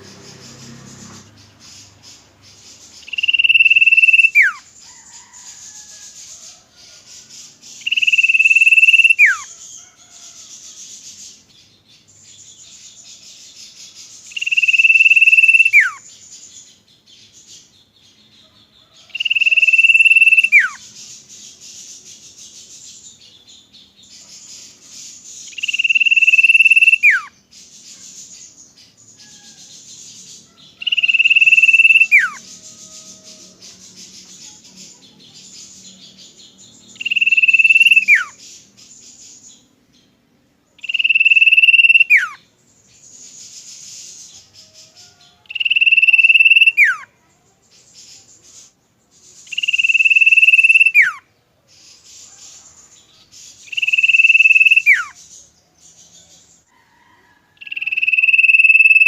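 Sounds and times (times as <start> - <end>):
steady high-pitched hiss: 0.0 - 56.8
bird whistling: 3.0 - 4.6, 7.8 - 9.5, 14.3 - 16.1, 19.2 - 20.8, 25.5 - 27.3, 30.8 - 33.0, 37.0 - 38.4, 40.8 - 42.4, 45.5 - 47.0, 49.5 - 51.2, 53.7 - 55.2, 57.6 - 59.0.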